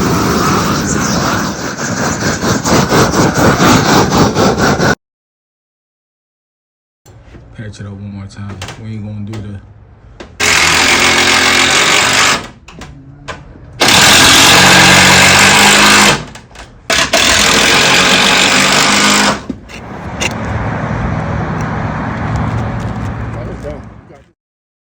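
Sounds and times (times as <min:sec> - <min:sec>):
power tool running: 0:10.4 - 0:12.6, 0:13.8 - 0:23.8.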